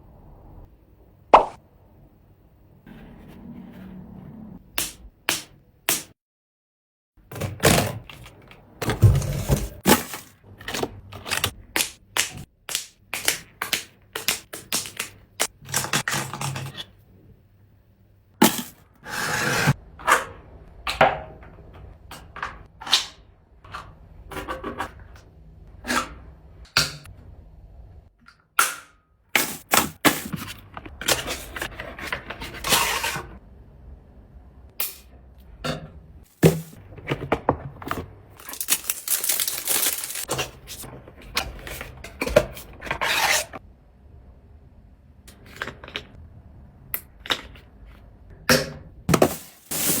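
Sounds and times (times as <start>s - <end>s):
items clicking and knocking: 7.2s - 16.9s, 18.4s - 18.8s, 35.6s - 43.0s, 47.0s - 50.0s
packaging rustling: 38.4s - 40.8s, 49.1s - 50.0s.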